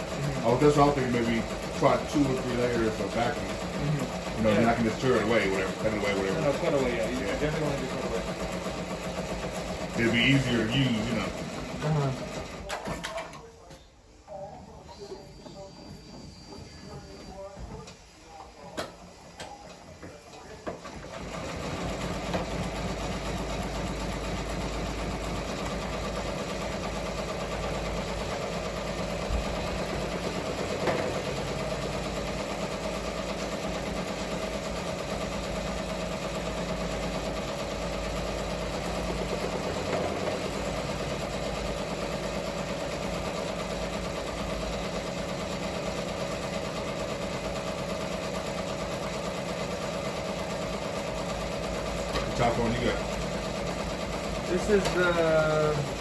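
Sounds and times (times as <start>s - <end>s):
embroidery machine clattering: 0.0s - 13.4s, 48.4s - 56.0s.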